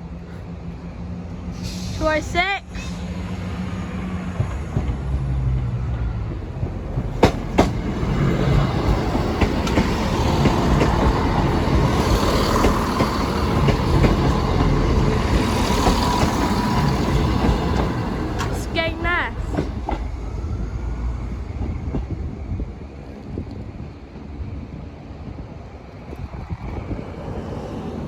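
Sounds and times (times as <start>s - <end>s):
train passing: 0.0s - 28.0s
wheels clacking over rail joint: 6.6s - 18.8s.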